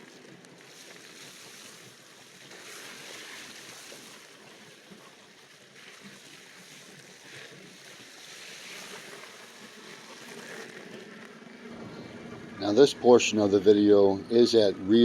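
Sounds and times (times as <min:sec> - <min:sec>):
surf: 0:00.8 - 0:15.0
wind rushing: 0:11.7 - 0:13.3.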